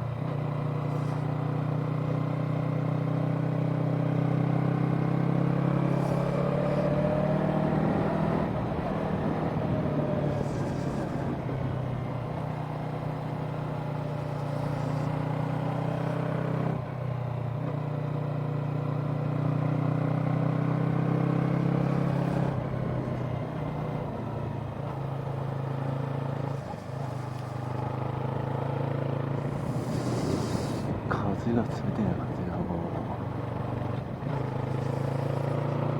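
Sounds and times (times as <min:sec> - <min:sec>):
motorcycle engine running: 0:00.0 - 0:35.9
wind rumble on microphone: 0:06.8 - 0:13.2, 0:29.4 - 0:35.2.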